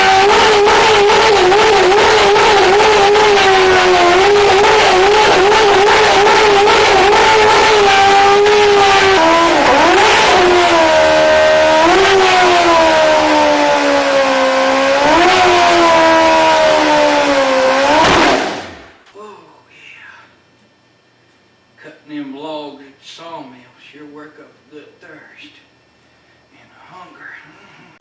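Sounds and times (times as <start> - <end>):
motorcycle engine revving: 0.0 - 19.0
spinning tyre hissing: 0.0 - 19.0.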